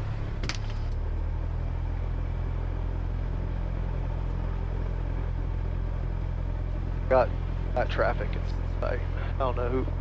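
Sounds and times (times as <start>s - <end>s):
aircraft piston engine droning: 2.6s - 10.0s.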